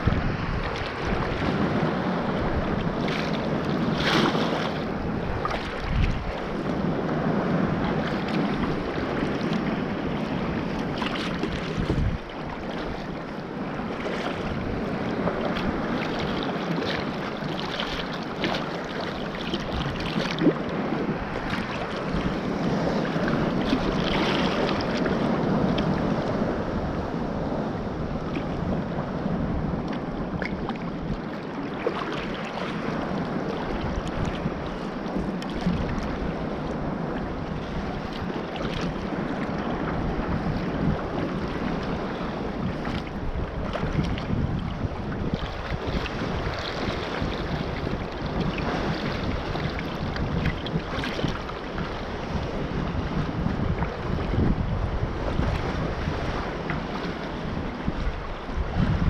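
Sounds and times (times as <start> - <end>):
sea water washing: 0.0 - 59.0
wind buffeting microphone: 0.0 - 59.0.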